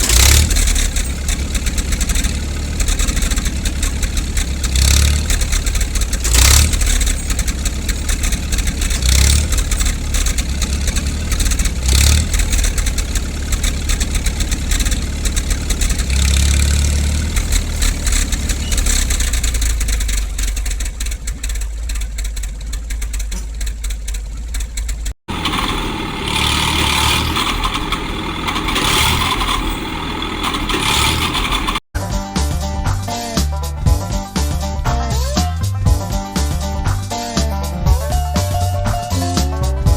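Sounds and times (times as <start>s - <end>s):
tractor engine revving under load: 0.0s - 31.9s.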